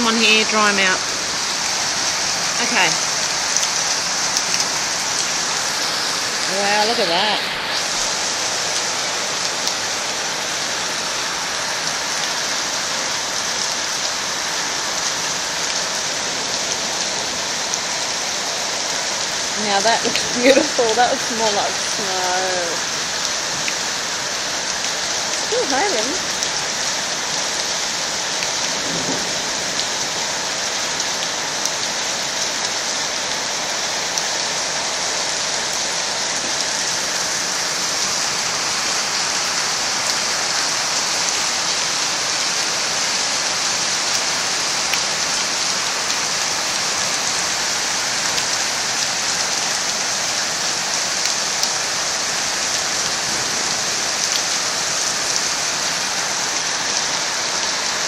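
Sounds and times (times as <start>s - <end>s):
hail falling: 0.0s - 58.0s.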